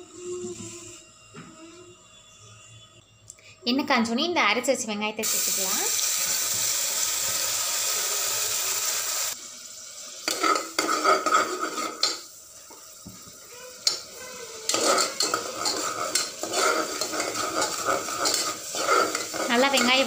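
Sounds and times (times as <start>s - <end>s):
paste sizzling in hot oil: 5.2s - 20.0s
steel spoon scraping a pot: 10.3s - 12.2s, 13.8s - 20.0s.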